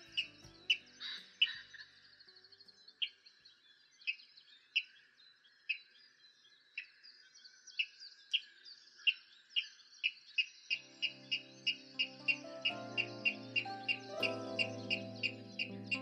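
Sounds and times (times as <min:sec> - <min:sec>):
faint high twittering: 0:00.0 - 0:16.0
sharp bird call notes: 0:10.7 - 0:16.0.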